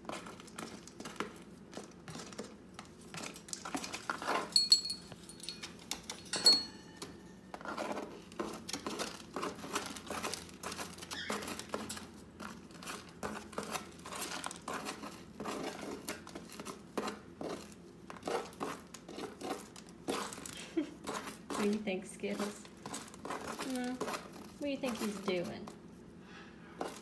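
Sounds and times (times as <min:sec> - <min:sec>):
parrot shredding material: 0:00.0 - 0:04.6, 0:07.4 - 0:27.0
sharp clink: 0:04.6 - 0:07.1.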